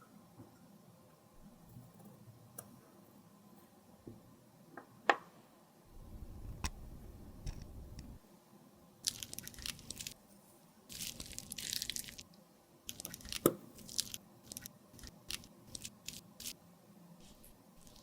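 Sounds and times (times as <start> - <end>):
crunching and scraping cosmetics: 9.0 - 10.2, 10.9 - 12.2, 12.9 - 16.6.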